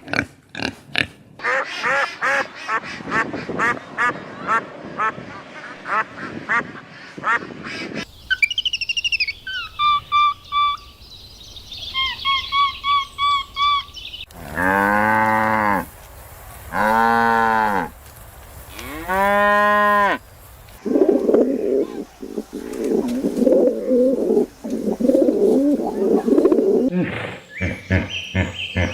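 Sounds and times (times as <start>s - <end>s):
ducks quacking: 0.1s - 8.1s, 20.8s - 26.9s, 27.6s - 28.9s
bird repeated high calls: 8.0s - 11.0s, 11.6s - 14.3s
cow mooing: 14.4s - 15.9s.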